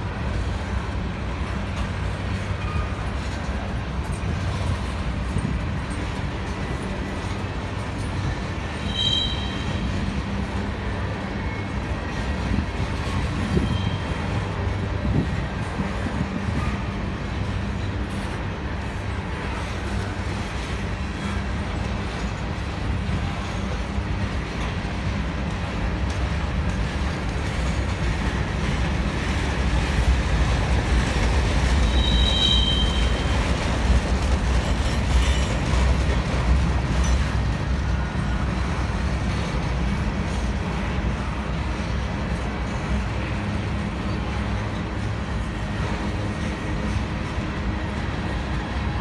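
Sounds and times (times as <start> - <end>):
freight train wheels rumbling: 0.0 - 49.0
high wheel squeal: 8.7 - 10.0, 13.4 - 14.4, 31.8 - 33.6.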